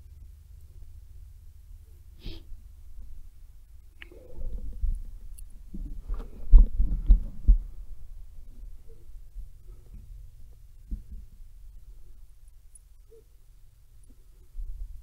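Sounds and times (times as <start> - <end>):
steady low rumble: 0.0 - 15.0
microphone handling thuds: 5.7 - 7.8.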